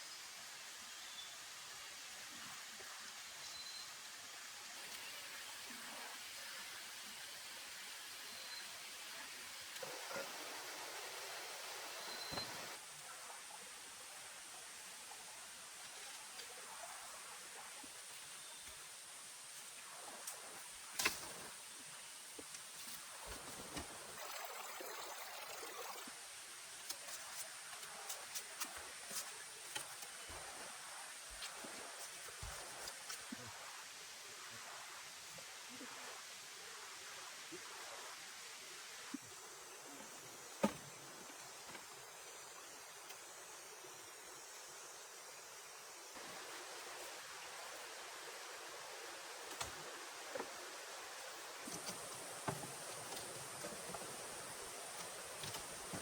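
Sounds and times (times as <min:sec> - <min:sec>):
rain falling in forest: 0:07.6 - 0:34.6, 0:38.6 - 0:56.0.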